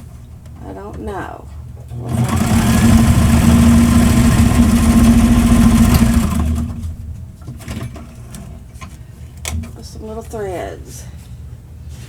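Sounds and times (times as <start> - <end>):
electric sewing machine stitching: 1.9 - 7.1.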